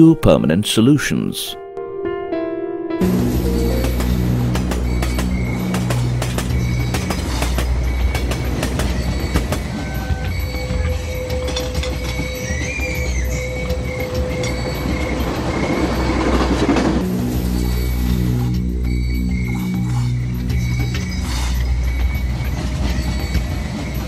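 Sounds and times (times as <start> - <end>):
background music: 0.0 - 24.0
train wheels rumbling on rails: 3.0 - 24.0
thin wheel squeal: 4.7 - 16.4.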